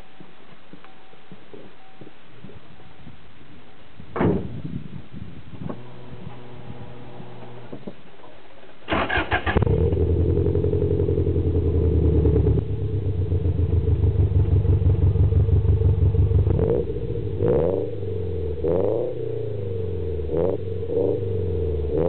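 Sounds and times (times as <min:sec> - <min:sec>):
car engine revving: 0:08.9 - 0:22.0.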